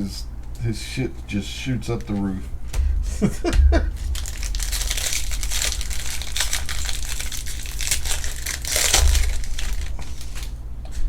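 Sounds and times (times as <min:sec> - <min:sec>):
low steady hum: 0:00.0 - 0:11.0
foil wrappers crinkling and tearing: 0:03.5 - 0:10.6.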